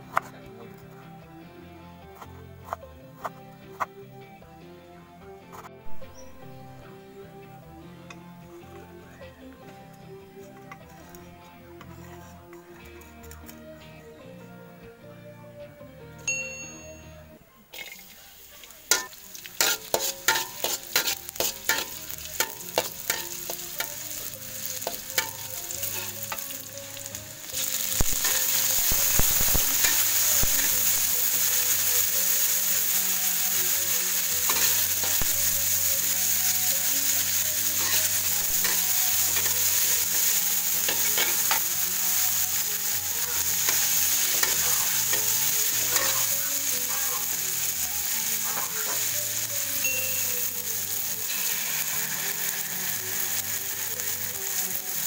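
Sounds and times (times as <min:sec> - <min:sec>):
metal spatula in wok: 0:17.7 - 0:55.0
vegetables sizzling in hot oil: 0:17.7 - 0:55.0.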